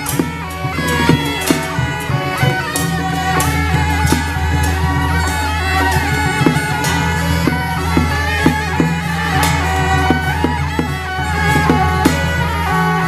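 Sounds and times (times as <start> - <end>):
percussion strikes: 0.0 - 13.0
reed wind instrument melody: 0.0 - 13.0.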